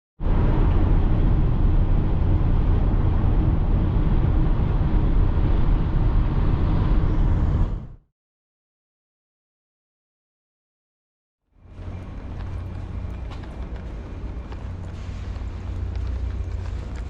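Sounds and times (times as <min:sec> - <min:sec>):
vehicle rumbling on road: 0:00.2 - 0:08.0, 0:11.5 - 0:17.0.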